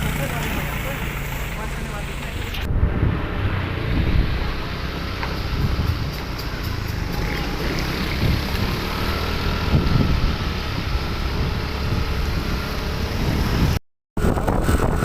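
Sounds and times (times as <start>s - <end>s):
truck engine running: 0.0s - 2.7s
road rumble: 0.0s - 15.0s
wind buffeting microphone: 2.6s - 15.0s.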